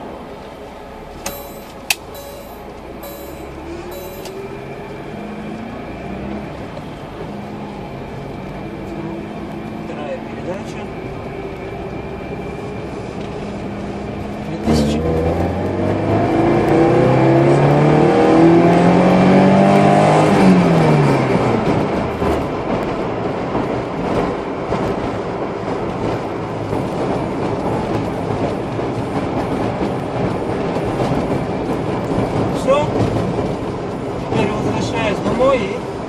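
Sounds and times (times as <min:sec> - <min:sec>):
car engine accelerating: 0:00.0 - 0:25.2
road noise: 0:00.0 - 0:36.0.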